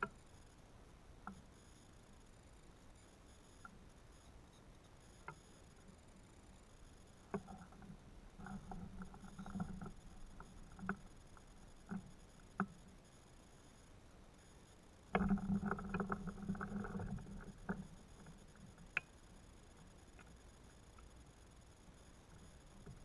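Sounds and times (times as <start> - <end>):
faint knocks and clicks: 3.4 - 6.0, 6.8 - 12.9, 15.1 - 21.2, 22.4 - 23.0.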